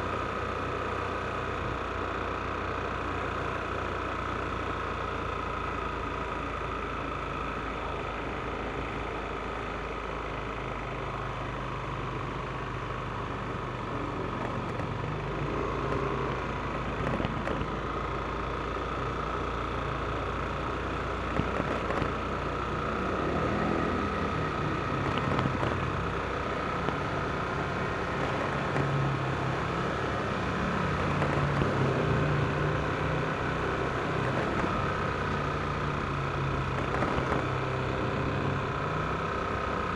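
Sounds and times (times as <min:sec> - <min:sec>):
scooter engine running: 0:00.0 - 0:39.9
wind and road noise: 0:10.0 - 0:39.9.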